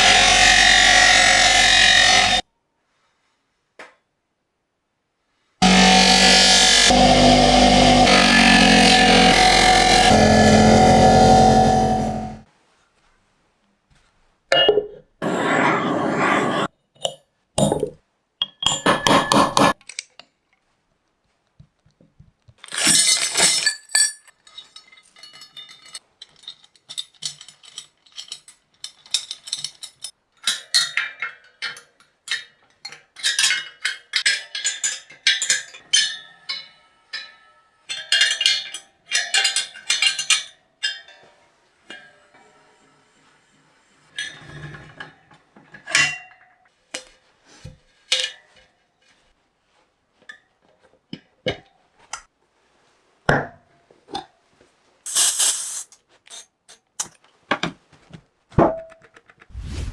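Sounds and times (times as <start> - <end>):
small hard parts clinking: 22.6 - 37.3.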